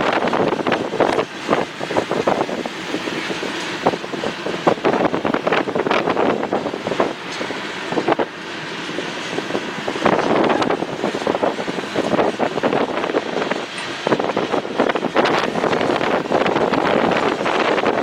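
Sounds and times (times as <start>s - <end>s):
train cars clanking and rattling: 0.0s - 18.0s
train wheels rumbling on rail: 0.0s - 18.0s.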